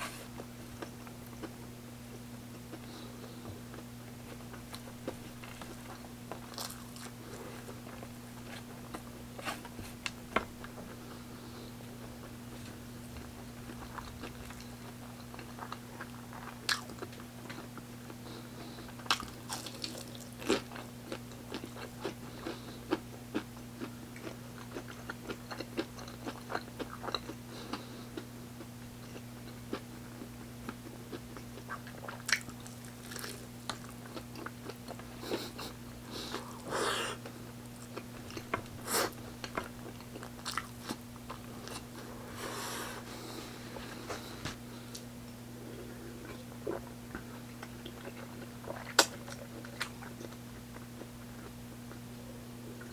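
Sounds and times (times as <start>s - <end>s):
person chewing crunchy food: 0.0s - 52.0s.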